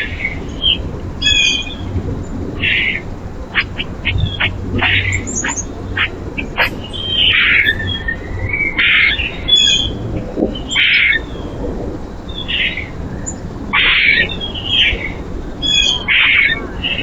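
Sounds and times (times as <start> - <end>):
harsh rasping bird calls: 2.6 - 11.5
faint thin bird chirps: 6.6 - 8.7.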